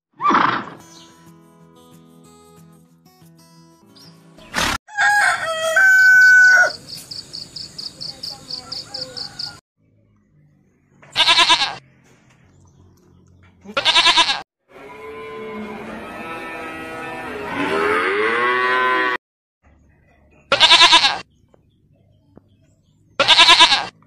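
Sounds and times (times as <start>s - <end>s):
rooster crowing: 4.9s - 6.8s, 8.5s - 9.6s
sheep bleating: 11.1s - 11.8s, 13.7s - 14.4s, 20.5s - 21.2s, 23.2s - 24.0s.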